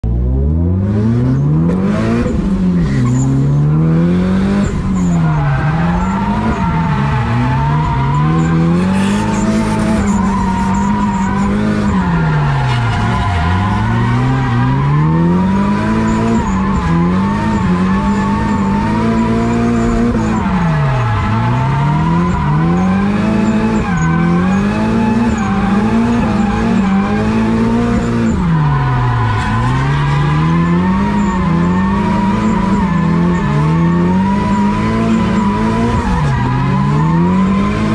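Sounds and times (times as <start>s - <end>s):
car engine revving hard: 0.4s - 37.9s
tyres squealing and skidding: 1.4s - 37.9s.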